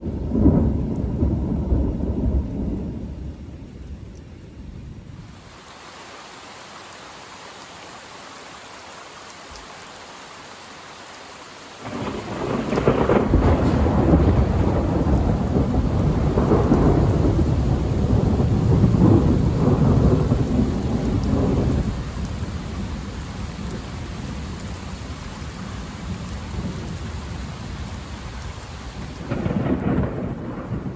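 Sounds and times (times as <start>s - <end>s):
thunder rumbling: 0.0s - 5.4s, 11.8s - 30.9s
heavy rain: 0.0s - 30.9s.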